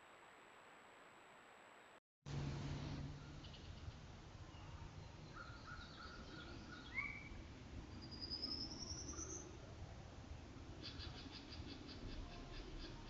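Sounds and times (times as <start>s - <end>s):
faint bird calls: 3.2s - 9.6s, 10.8s - 13.0s.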